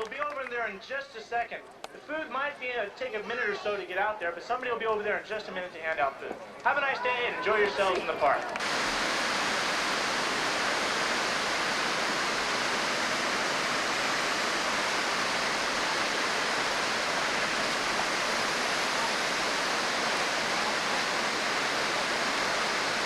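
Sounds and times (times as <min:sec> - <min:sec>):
steady hiss-like rushing noise: 0:06.7 - 0:23.0.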